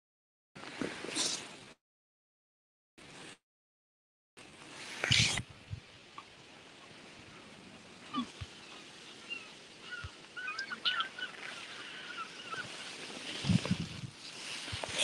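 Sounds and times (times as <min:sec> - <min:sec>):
faint outdoor background noise: 0:04.4 - 0:15.0
birds chirping: 0:08.0 - 0:13.2.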